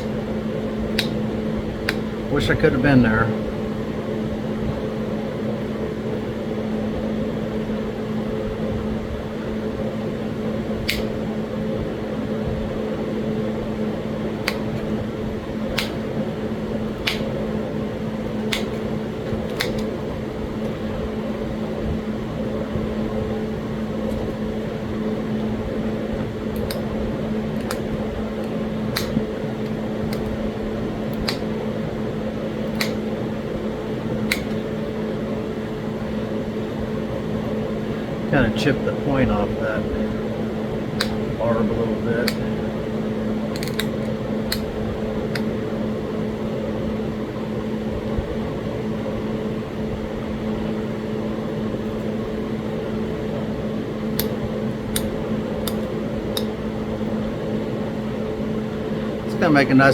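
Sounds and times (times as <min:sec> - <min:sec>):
electric fan hum: 0:00.0 - 0:59.9
stone flakes snapping: 0:43.6 - 0:44.6.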